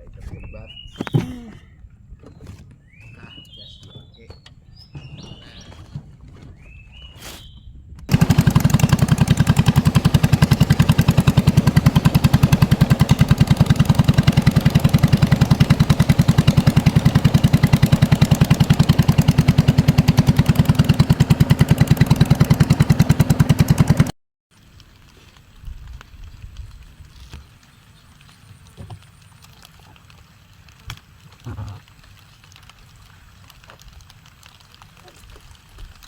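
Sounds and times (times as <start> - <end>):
small engine chugging: 8.1 - 24.1.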